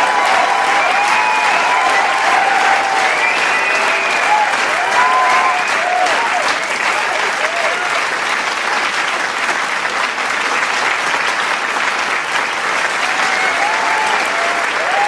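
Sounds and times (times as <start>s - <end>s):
cheers and whoops: 0.0s - 8.0s, 12.9s - 15.0s
crowd applauding: 0.0s - 15.0s.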